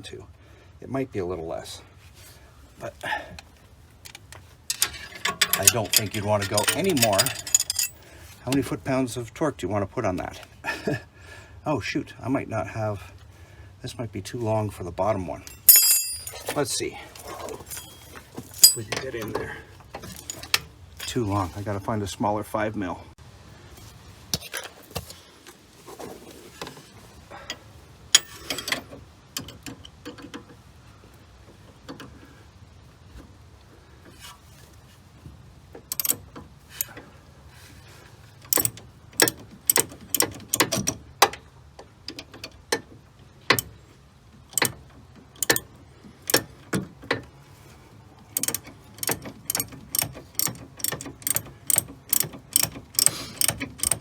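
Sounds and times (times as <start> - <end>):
ratchet wrench clicking: 4.7 - 8.0, 35.9 - 36.2, 38.5 - 40.9, 45.4 - 45.7, 46.3 - 46.5, 48.4 - 54.0.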